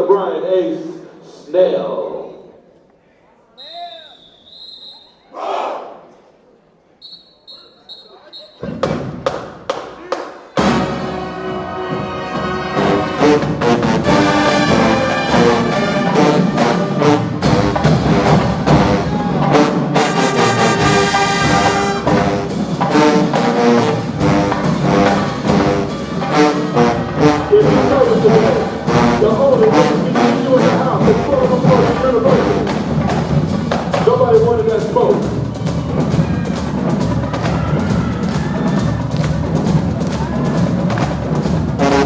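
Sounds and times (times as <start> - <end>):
drumline beat: 8.3 - 42.0
trombones and trumpets playing: 10.6 - 38.8, 39.5 - 42.0.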